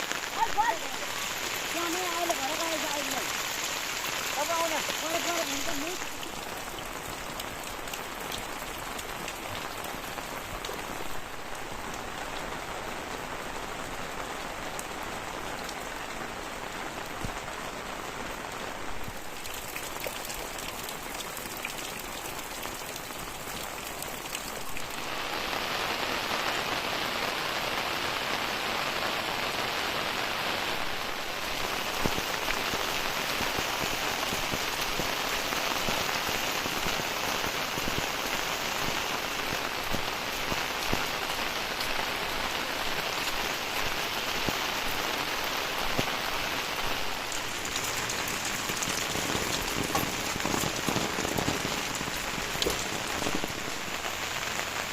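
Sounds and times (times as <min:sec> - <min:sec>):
heavy rain: 0:00.0 - 0:54.9.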